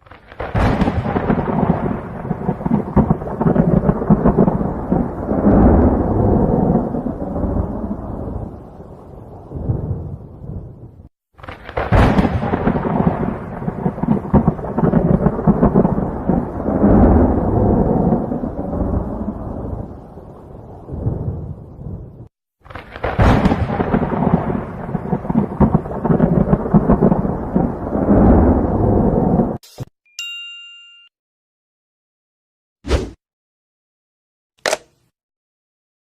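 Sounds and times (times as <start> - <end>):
thunder crack and rumble: 0.0 - 29.6.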